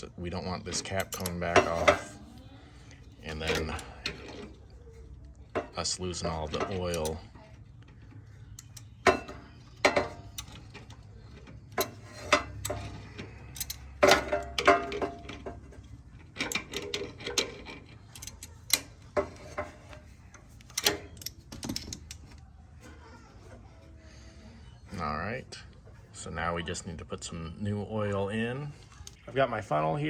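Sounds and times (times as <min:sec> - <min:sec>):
metal hand tool clicking: 0:13.5 - 0:14.7.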